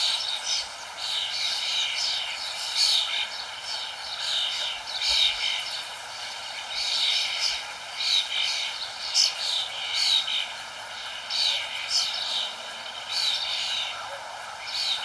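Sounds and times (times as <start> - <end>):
background hiss: 0.0 - 15.0
birds chirping: 0.0 - 15.0.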